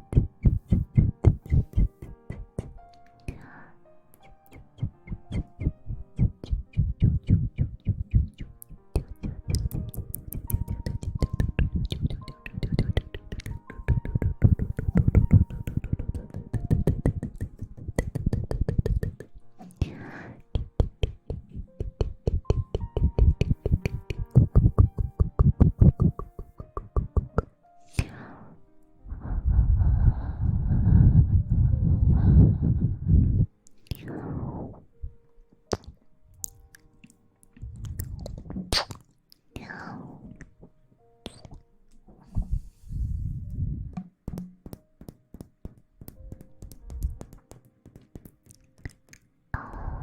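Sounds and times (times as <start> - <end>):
rubbing on microphone: 0.0 - 2.9
tapping and scratching: 0.0 - 3.4, 4.2 - 19.8, 20.5 - 27.5, 44.0 - 49.3
faint background music: 0.0 - 50.0.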